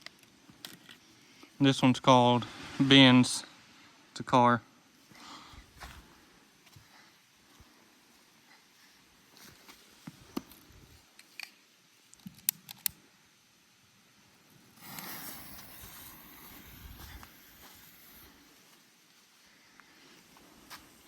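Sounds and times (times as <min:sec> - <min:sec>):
firework hissing: 0:14.7 - 0:18.8.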